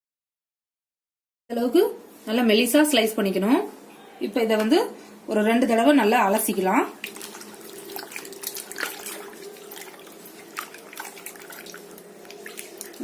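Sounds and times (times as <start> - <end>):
water splashing and dripping: 7.0 - 13.0.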